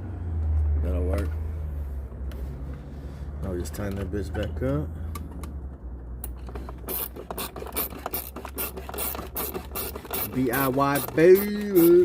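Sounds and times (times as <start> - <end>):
ratchet clicking: 6.2 - 12.0.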